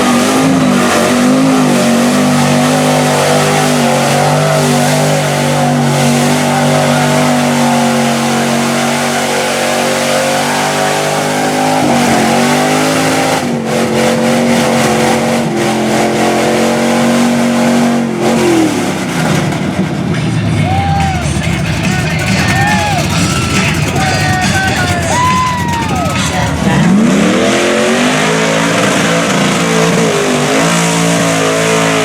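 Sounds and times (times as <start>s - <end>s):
truck engine revving high: 0.0s - 32.0s.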